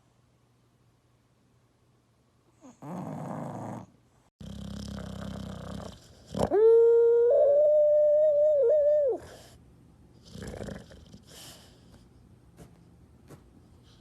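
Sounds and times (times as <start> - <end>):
dog snoring: 2.6 - 6.6, 10.2 - 11.7
dog howling: 6.4 - 9.3.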